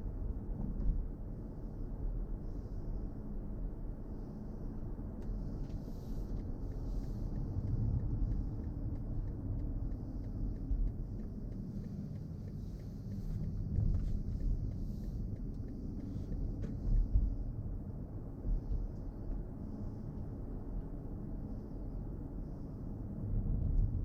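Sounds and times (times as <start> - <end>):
road and tyre rumble: 0.0 - 24.0.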